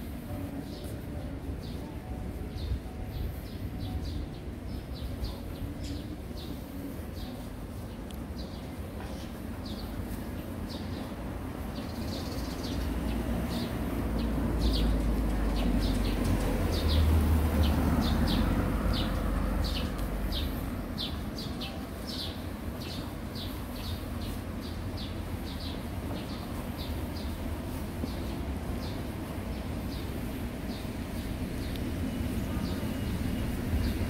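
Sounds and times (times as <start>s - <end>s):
street traffic rumble: 0.0s - 34.0s
vehicle passing: 12.9s - 21.4s.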